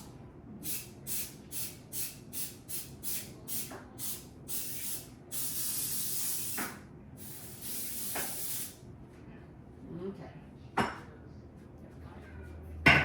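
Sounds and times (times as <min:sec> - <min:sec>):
aerosol cooking spray bursts: 0:00.6 - 0:08.8.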